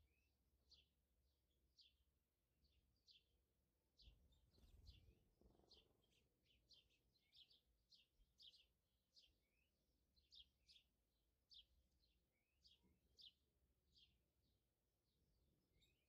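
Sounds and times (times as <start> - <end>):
small bird chirping: 4.0 - 10.9.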